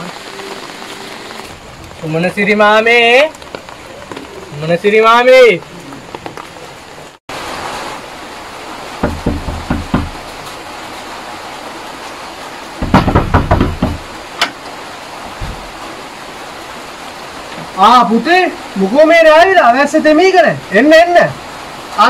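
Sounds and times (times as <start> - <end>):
steady hiss: 0.0 - 22.0
knocks: 9.0 - 10.3, 12.8 - 14.6.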